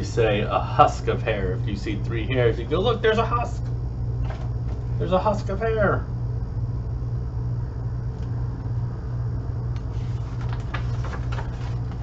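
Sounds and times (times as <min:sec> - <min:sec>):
low hum: 0:00.0 - 0:12.0
faint clicks and rustles: 0:09.8 - 0:12.0.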